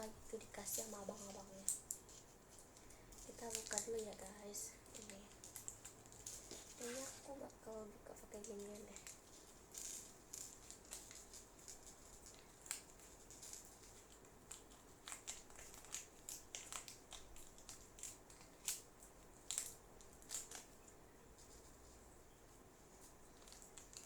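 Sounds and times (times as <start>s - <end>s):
clay package crinkling: 0.0s - 24.0s
sharp clicks and snaps: 2.8s - 7.8s, 9.8s - 21.0s.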